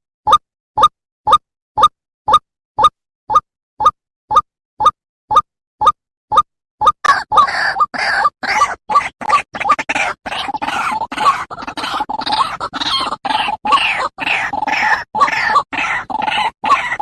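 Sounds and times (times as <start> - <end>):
waterhen harsh calls: 7.0 - 17.0.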